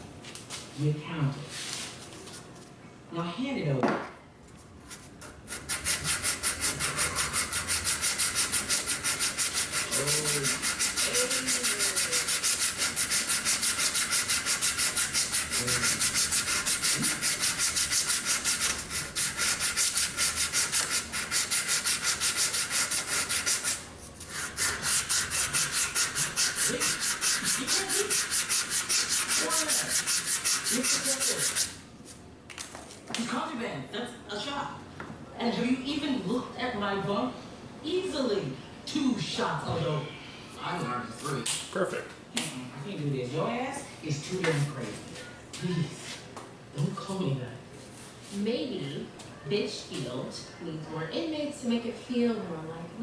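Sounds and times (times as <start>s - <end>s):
sandpaper rubbing wood: 5.2s - 31.8s.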